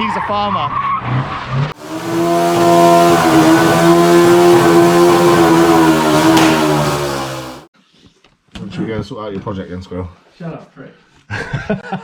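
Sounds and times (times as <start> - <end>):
car engine at high revs: 1.8 - 7.7.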